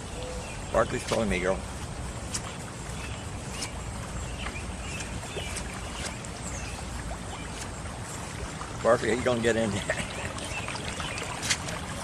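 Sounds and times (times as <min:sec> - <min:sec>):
rainwater runoff rushing: 0:03.8 - 0:12.0.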